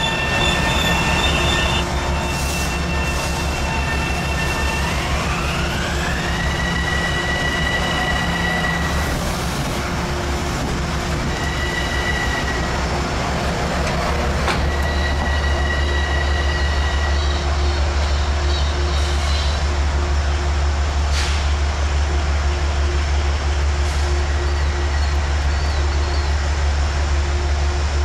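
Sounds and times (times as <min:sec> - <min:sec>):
high-pitched wheel squeal: 0:00.0 - 0:09.2, 0:11.3 - 0:12.8, 0:14.5 - 0:17.6
train rumbling past: 0:00.0 - 0:28.0.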